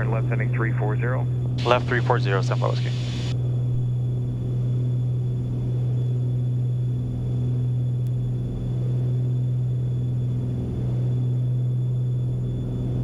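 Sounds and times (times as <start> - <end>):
propeller plane engines droning: 0.0 - 13.0.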